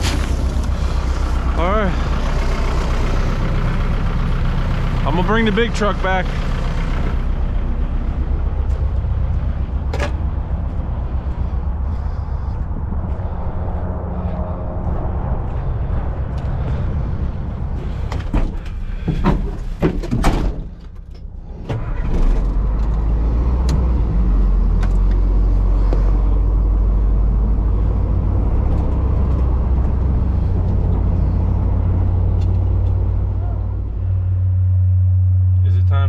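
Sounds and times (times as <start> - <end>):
truck engine running: 0.0 - 36.0
sharp knocks and clatter: 18.1 - 21.2.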